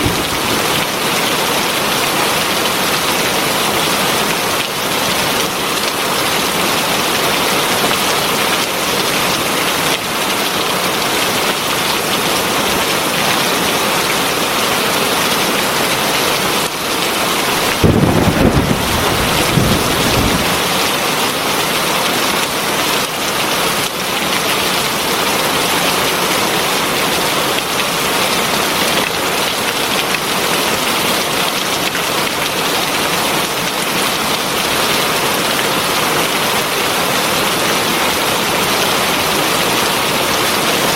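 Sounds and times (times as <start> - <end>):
low rumble of thunder: 0.0 - 0.9, 17.6 - 20.7
heavy rain falling: 0.0 - 40.9.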